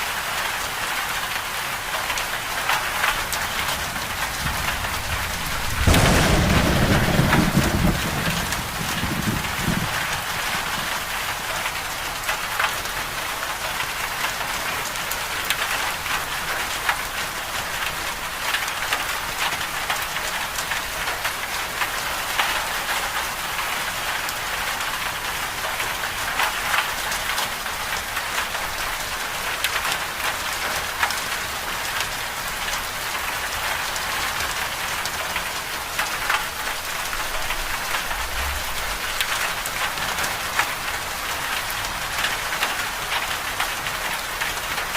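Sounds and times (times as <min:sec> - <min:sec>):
steady rain hiss: 0:00.0 - 0:44.9
raindrops tapping: 0:02.0 - 0:23.5, 0:32.0 - 0:44.9.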